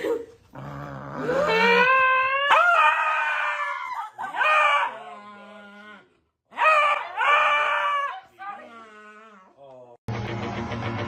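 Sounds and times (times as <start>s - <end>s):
dog howling: 1.1s - 8.2s.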